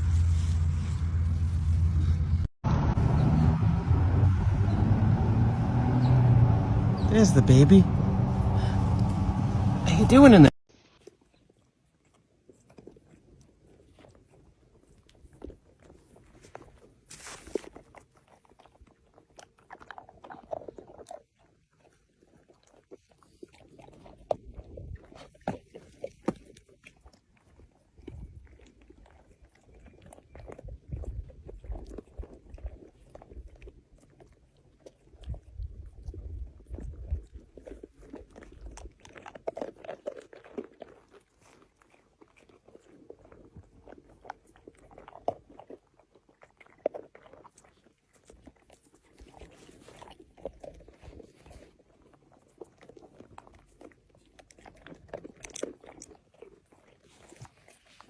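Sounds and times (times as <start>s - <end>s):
low rumble: 0.0s - 10.5s
animal crunching and chewing: 10.1s - 58.0s.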